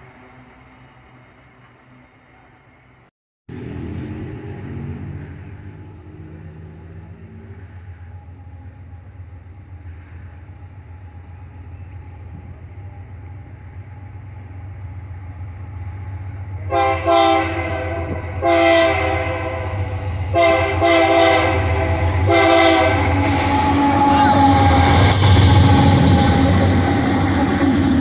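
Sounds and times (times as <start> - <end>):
diesel locomotive engine rumble: 0.0 - 28.0
locomotive air horn blasts: 16.6 - 27.8.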